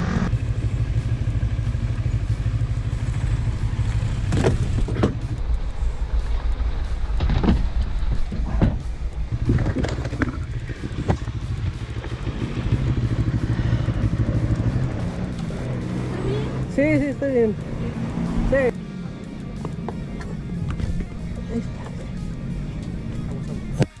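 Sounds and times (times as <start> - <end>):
motorcycle engine rumble: 0.0 - 24.0
wind noise: 4.3 - 12.4.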